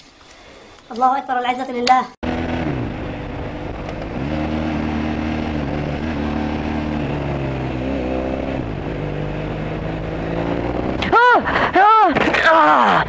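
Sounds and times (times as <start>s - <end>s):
car engine revving: 2.2s - 11.8s.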